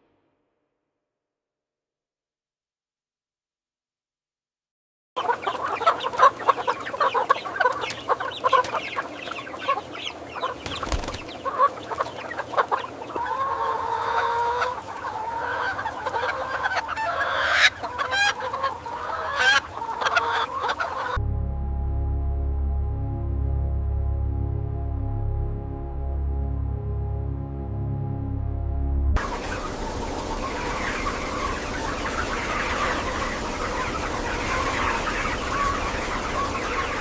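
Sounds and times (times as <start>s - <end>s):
chickens clucking: 5.2s - 21.2s, 29.2s - 37.0s
background music: 21.2s - 37.0s.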